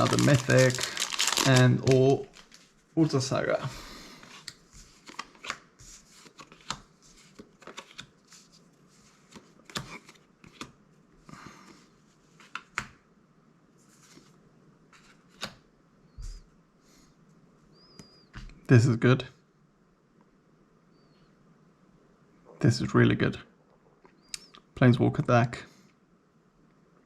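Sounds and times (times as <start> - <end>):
cards being flipped through: 0.0 - 3.2, 4.2 - 10.7, 15.0 - 15.6.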